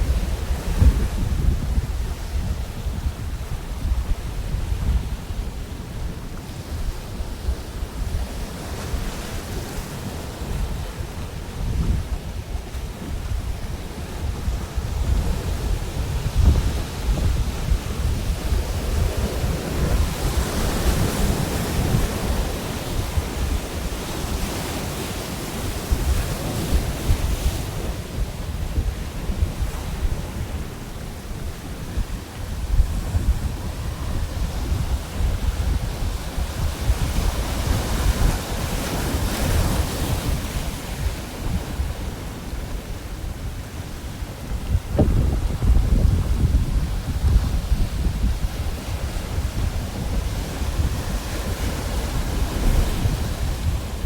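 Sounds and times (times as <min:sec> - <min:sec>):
surf breaking on a beach: 0:00.0 - 0:54.0
wind rumble on microphone: 0:00.0 - 0:54.0.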